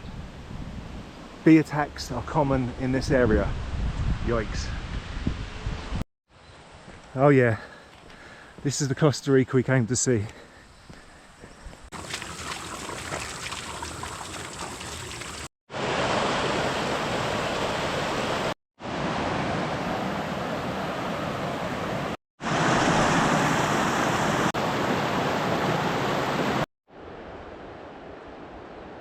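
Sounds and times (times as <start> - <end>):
mountain stream rushing: 11.9 - 26.6.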